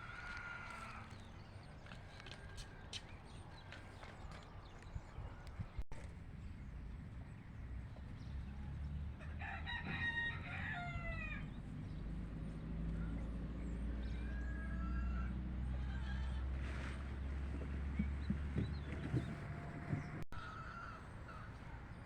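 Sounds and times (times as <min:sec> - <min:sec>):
rooster crowing: 0:00.0 - 0:01.1, 0:09.2 - 0:11.5, 0:20.4 - 0:21.4.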